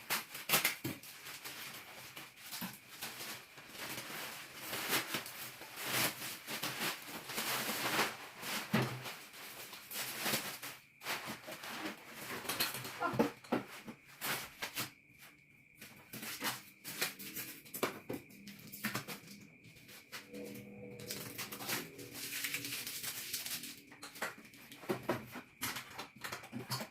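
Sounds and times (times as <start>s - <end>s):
packaging rustling and crackling: 0.0s - 13.6s, 20.4s - 24.3s.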